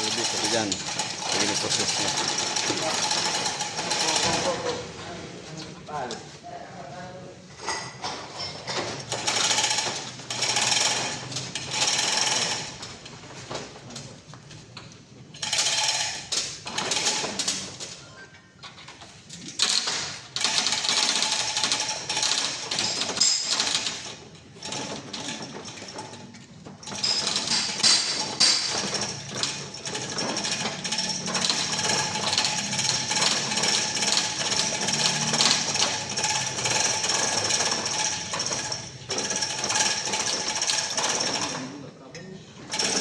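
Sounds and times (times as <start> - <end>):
metallic rattling and clattering: 18.7 - 41.7.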